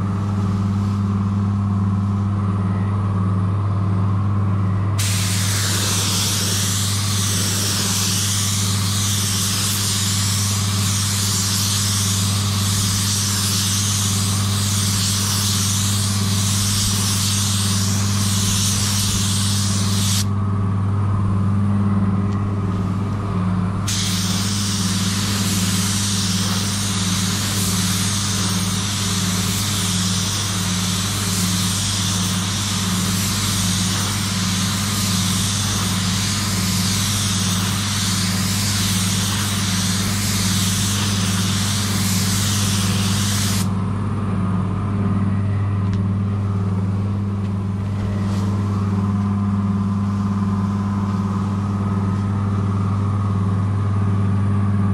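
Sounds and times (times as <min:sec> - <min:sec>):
low machine hum: 0:00.0 - 0:54.9
spray gun hissing: 0:05.0 - 0:20.3, 0:23.9 - 0:43.7.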